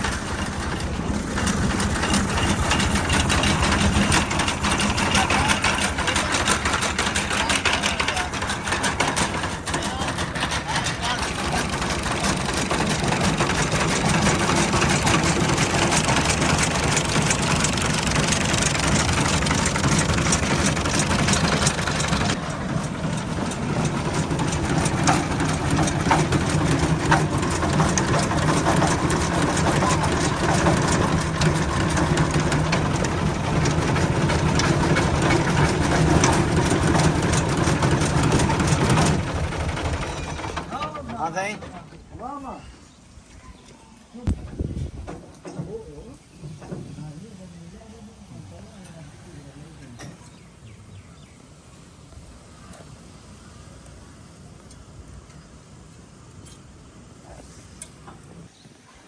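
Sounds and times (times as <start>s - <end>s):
mechanical clatter of reaper: 0.0s - 41.3s
tractor engine running: 0.0s - 42.2s.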